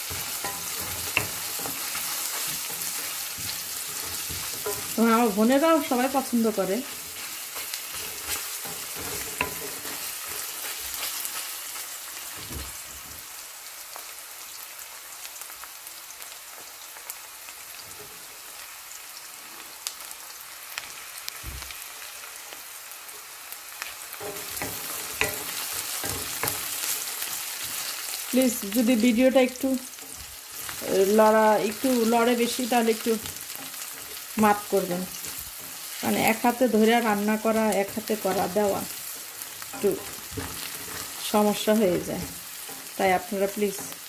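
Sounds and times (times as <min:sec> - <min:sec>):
wooden spoon scraping pan: 0:00.0 - 0:12.8, 0:29.7 - 0:44.0
vegetables sizzling in hot oil: 0:00.0 - 0:44.0.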